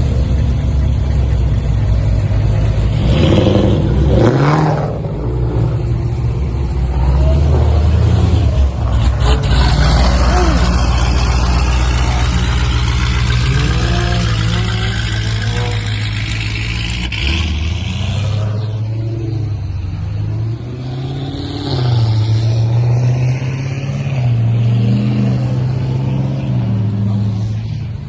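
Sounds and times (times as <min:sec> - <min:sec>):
car engine running: 0:00.0 - 0:19.9.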